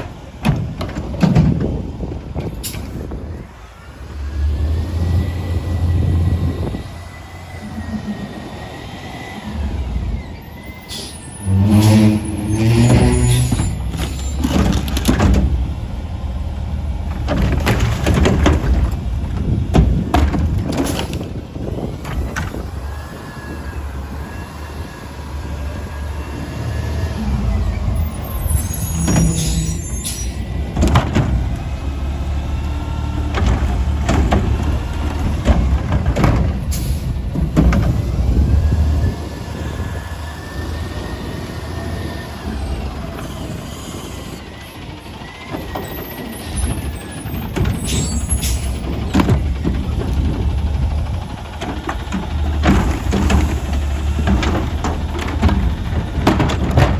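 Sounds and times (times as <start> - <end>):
hydraulic whine: 2.5 - 15.3
garbage truck diesel engine revving: 3.1 - 56.9
metal bangs and clanks: 17.0 - 22.6, 28.4 - 31.6, 46.6 - 56.9.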